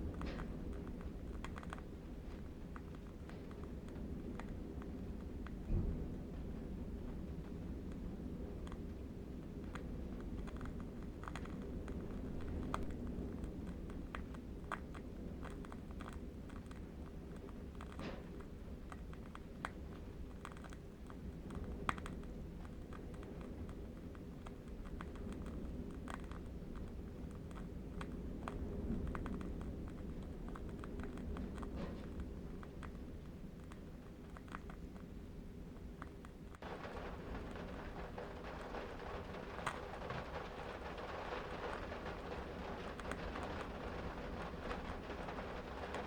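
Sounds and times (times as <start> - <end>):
low wind rumble: 0.0 - 46.0
candle wick crackling: 36.6 - 46.0.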